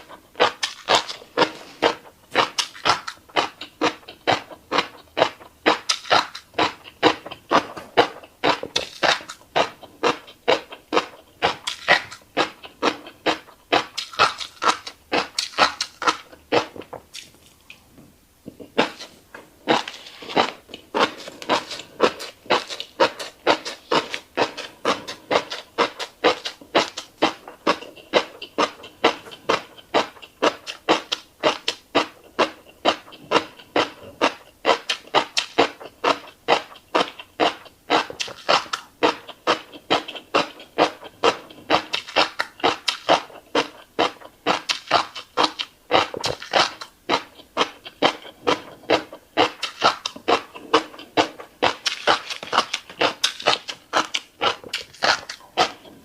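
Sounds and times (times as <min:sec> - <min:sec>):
wet chewing with lip smacks: 0:18.7 - 0:56.0.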